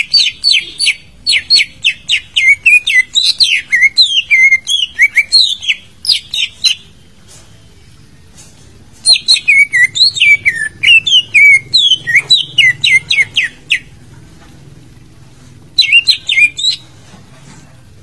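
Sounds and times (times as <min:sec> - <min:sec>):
bird singing whistled notes: 0:00.0 - 0:07.0, 0:09.0 - 0:13.9, 0:15.8 - 0:16.9.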